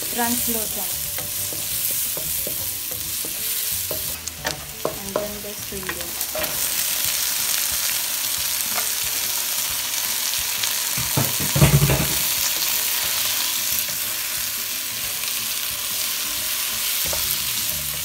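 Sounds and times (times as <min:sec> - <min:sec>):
spatula knocking and scraping pan: 0:00.0 - 0:06.9, 0:10.9 - 0:12.7
beans sizzling in oil: 0:00.0 - 0:18.0.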